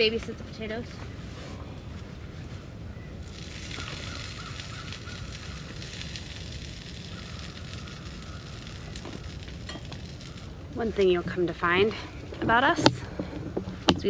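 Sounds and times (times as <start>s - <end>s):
steady low rumble: 0.0s - 14.0s
potatoes sizzling in a skillet: 3.2s - 11.9s.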